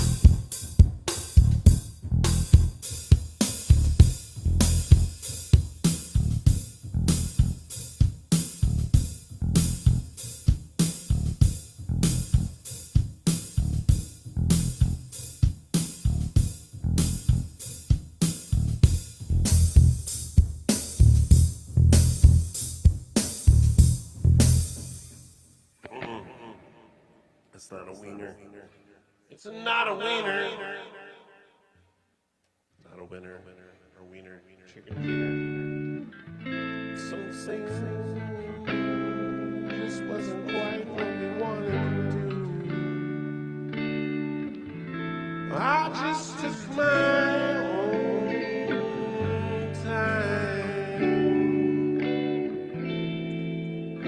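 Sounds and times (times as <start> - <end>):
bass guitar: 0.0 - 25.2, 35.0 - 54.0
steady drum beat: 0.0 - 25.3
electric guitar: 34.9 - 54.0.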